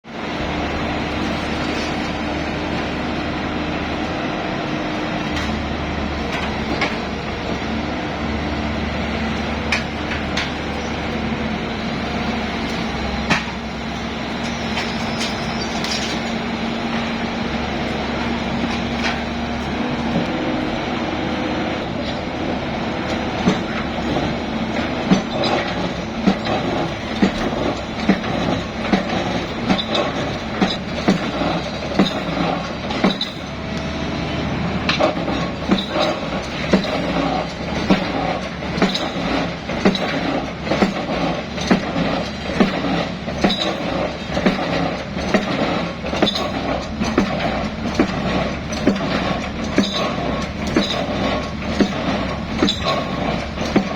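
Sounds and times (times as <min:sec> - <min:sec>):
excavator engine running: 0:00.1 - 0:53.9
metallic clanks and knocks: 0:09.3 - 0:11.1, 0:14.4 - 0:16.4, 0:23.0 - 0:33.6, 0:34.8 - 0:53.9.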